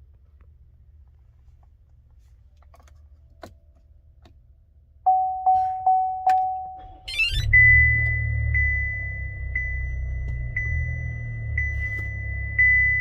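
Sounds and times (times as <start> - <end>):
car warning chimes: 5.0 - 13.0.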